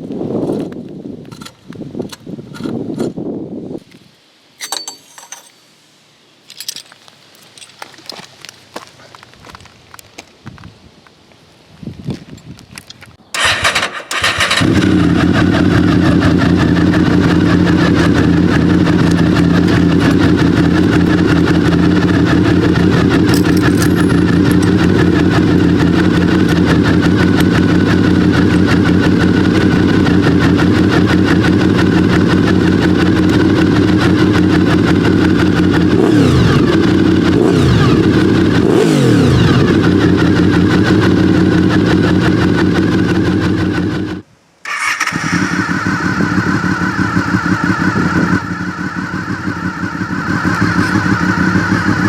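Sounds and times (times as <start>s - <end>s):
motorcycle starter cranking: 13.3s - 35.3s, 44.7s - 52.0s
motorcycle engine idling: 13.4s - 52.0s.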